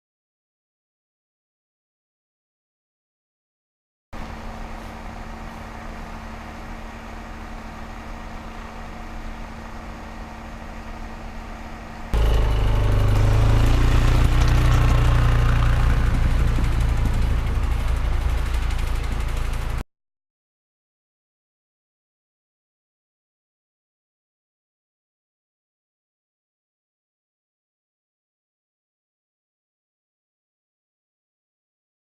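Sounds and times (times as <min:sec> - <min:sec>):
atv engine running: 0:12.2 - 0:19.8.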